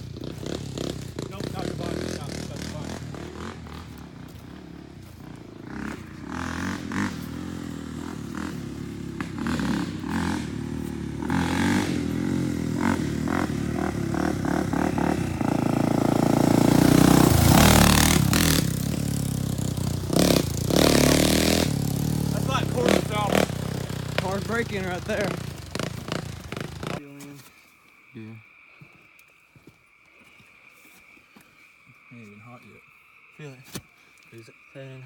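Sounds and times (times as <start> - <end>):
quad bike engine revving: 0.0 - 27.0.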